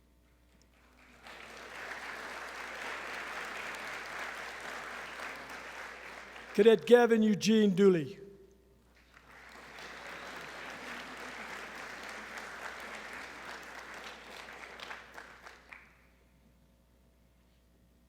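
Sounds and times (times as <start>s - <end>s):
audience applauding: 0.8s - 8.0s, 9.0s - 15.9s.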